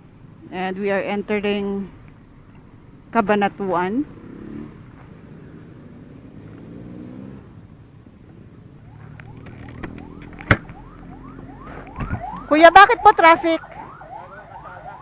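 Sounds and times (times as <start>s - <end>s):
distant emergency siren: 8.6s - 15.0s.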